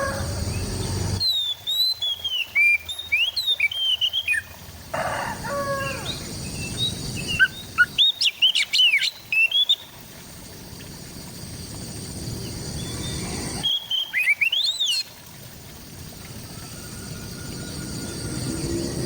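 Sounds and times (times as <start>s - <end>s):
bird singing whistled notes: 0.0s - 4.5s, 6.1s - 9.9s, 12.8s - 15.1s
low background rumble: 10.2s - 13.6s.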